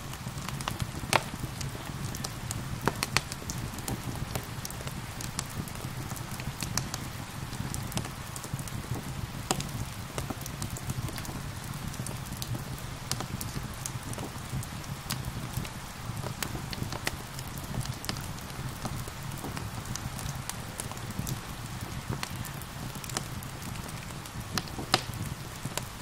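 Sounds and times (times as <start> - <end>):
gentle rain hissing: 0.0 - 26.0
wood fire crackling: 0.0 - 26.0.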